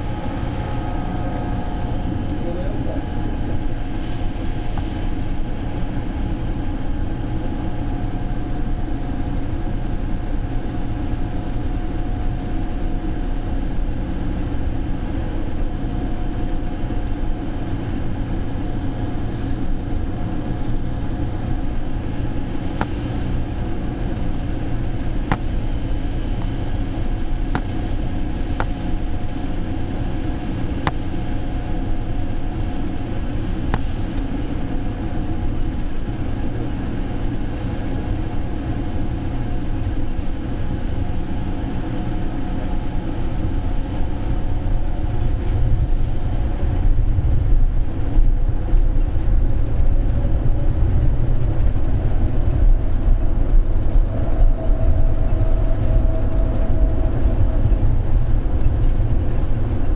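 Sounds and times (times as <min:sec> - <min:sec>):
steady tone: 0:00.0 - 0:07.1, 0:22.7 - 0:29.8, 0:51.8 - 0:59.9
people-mover train rumbling: 0:00.0 - 0:59.9.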